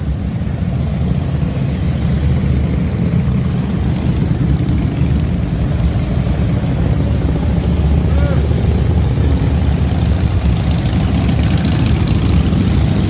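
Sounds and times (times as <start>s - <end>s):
motorcycle engines passing: 0.0s - 13.0s.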